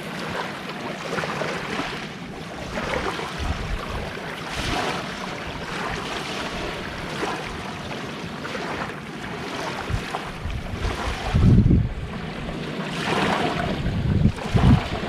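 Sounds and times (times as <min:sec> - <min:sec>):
sea waves washing onto shore: 0:00.0 - 0:15.0
wind buffeting microphone: 0:02.3 - 0:07.8, 0:08.8 - 0:15.0.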